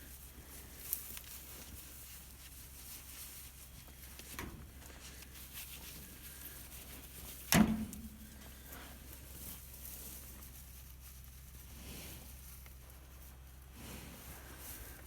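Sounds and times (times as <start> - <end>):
sharp hollow thump: 7.5 - 8.1.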